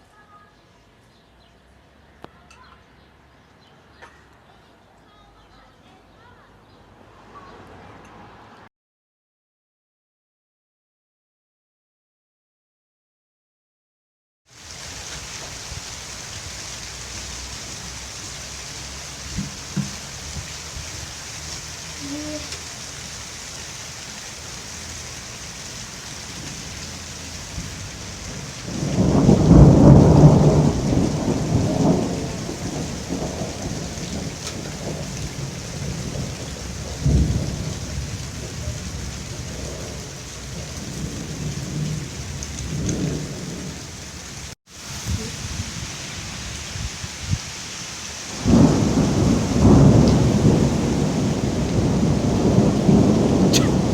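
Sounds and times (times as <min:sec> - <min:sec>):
heavy rain: 0:14.5 - 0:53.9
thunder rumbling: 0:24.4 - 0:47.4, 0:48.3 - 0:53.9
sharp thunderclap: 0:26.3 - 0:43.9, 0:48.3 - 0:53.9.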